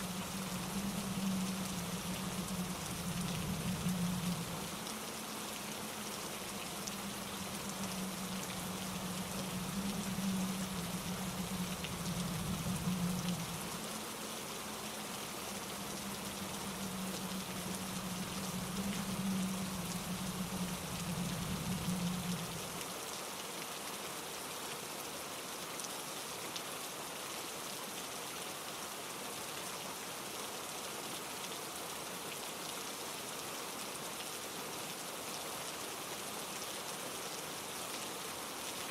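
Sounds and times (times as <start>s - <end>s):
low rumble: 0.0s - 14.0s, 15.1s - 22.8s
steady rain falling: 0.0s - 38.9s.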